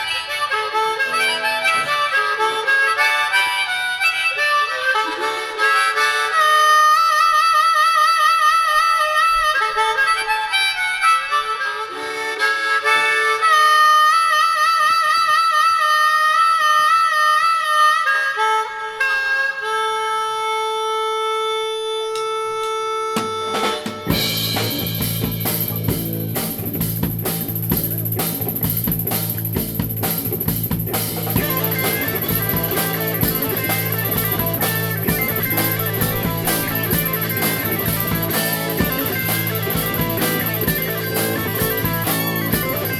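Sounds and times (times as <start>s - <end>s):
harmonica with bends: 0.0s - 42.9s
drums: 23.1s - 42.9s
bass line: 24.1s - 42.9s.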